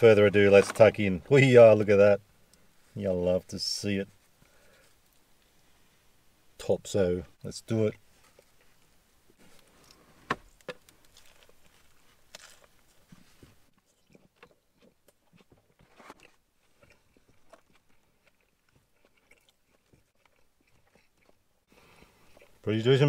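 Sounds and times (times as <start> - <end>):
person chewing close to microphone: 10.9 - 22.6.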